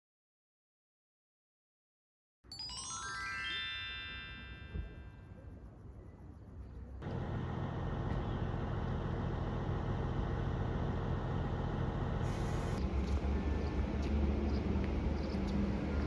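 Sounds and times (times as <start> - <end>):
bus engine and road noise: 4.8 - 16.0.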